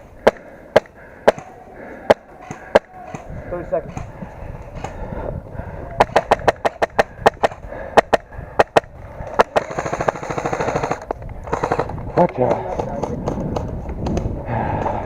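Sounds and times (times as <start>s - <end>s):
airsoft guns firing: 0.2s - 4.1s, 6.0s - 13.4s.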